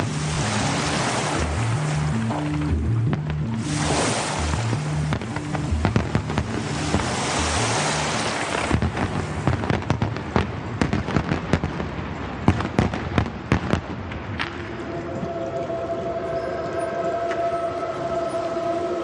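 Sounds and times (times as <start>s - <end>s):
music: 0.0s - 10.5s, 14.4s - 19.0s
fireworks bangs and pops: 2.3s - 14.7s.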